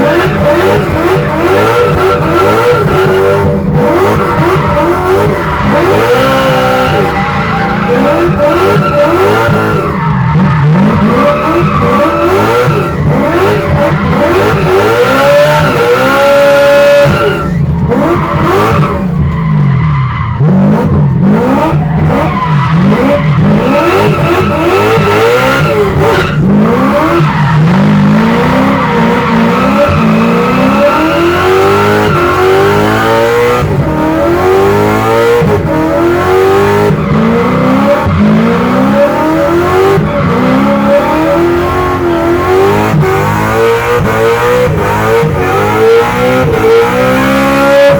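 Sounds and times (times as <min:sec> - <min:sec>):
car engine revving: 0:00.0 - 0:47.9.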